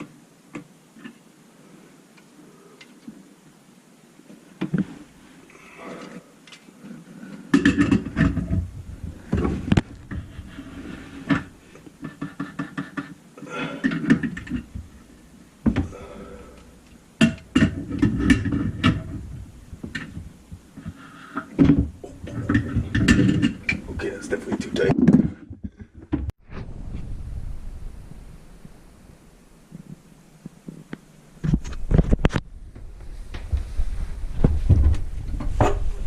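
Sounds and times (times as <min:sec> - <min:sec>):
knocks and clunks of drain parts: 0:07.5 - 0:10.6, 0:17.2 - 0:26.3.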